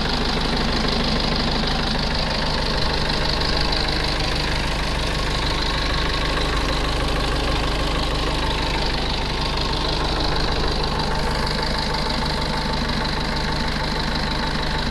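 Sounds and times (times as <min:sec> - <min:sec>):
truck engine idling: 0:00.0 - 0:14.9.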